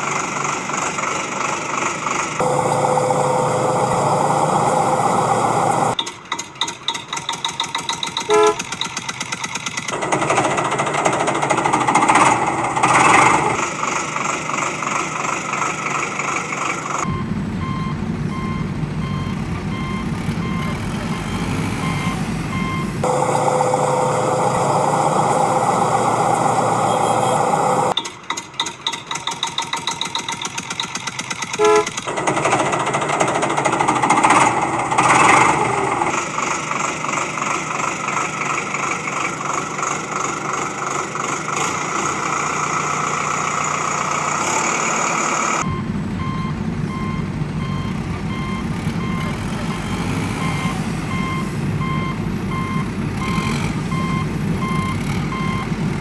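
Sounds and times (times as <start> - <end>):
heavy vehicle engine rumble: 0.0 - 56.0
horn blasts: 8.3 - 8.7, 23.0 - 27.9, 31.6 - 32.1
reversing beeps: 17.0 - 28.0, 45.6 - 55.7.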